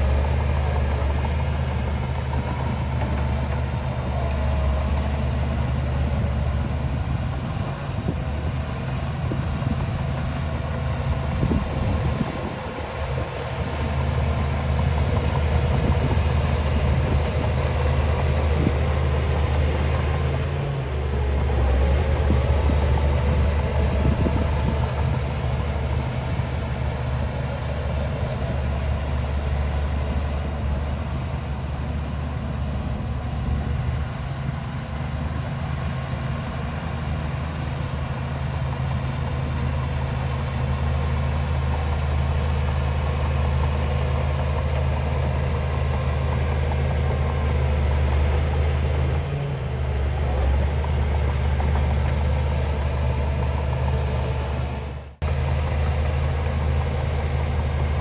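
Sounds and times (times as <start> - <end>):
heavy diesel engine humming: 0.0 - 58.0.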